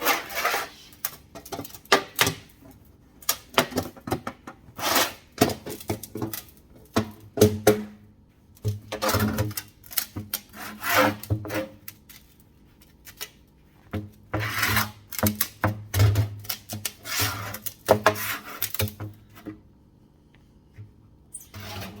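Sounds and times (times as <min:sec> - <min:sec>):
metal pipe rubbing and scraping: 0:00.0 - 0:01.0.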